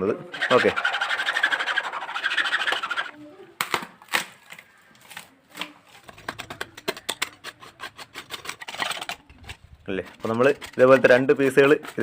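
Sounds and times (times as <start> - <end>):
blade scraping bark: 0.3 - 3.2, 6.0 - 12.0
bark cracking and knocking: 3.6 - 12.0.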